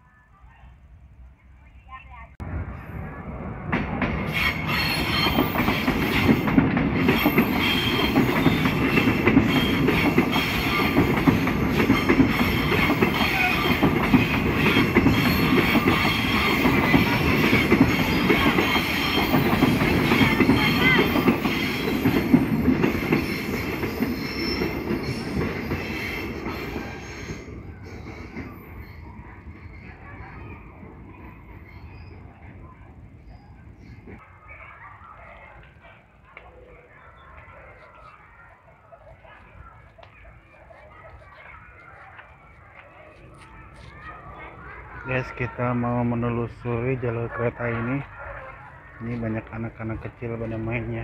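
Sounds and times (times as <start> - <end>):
train wheels rumbling and clacking: 2.4 - 34.2
metallic wheel squeal: 4.3 - 6.3, 7.1 - 11.1, 23.2 - 30.0.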